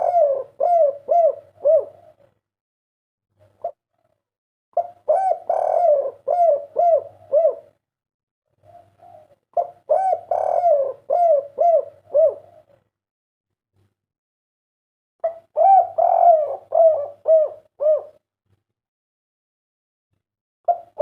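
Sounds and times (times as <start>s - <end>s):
dove cooing: 0.0s - 2.4s, 3.4s - 4.2s, 4.8s - 7.8s, 8.5s - 12.9s, 15.2s - 18.2s, 20.7s - 21.0s.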